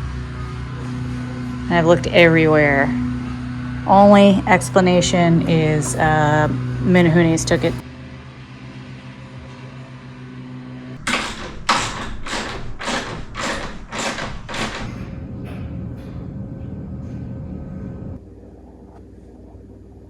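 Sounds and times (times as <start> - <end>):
steady hum: 0.0 - 20.0
evenly spaced thuds: 11.0 - 15.8.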